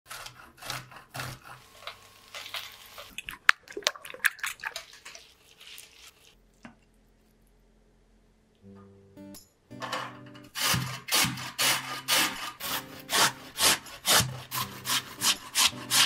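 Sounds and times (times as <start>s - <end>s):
sausage rasping on metal grater: 0.1s - 3.1s, 10.6s - 16.0s
wooden spatula stirring: 1.4s - 7.0s
potato frying in oil: 1.6s - 3.5s.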